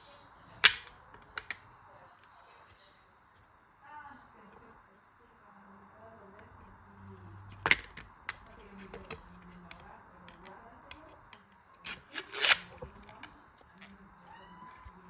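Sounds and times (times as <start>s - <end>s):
hard objects clicking and knocking: 0.6s - 1.6s, 7.5s - 14.0s.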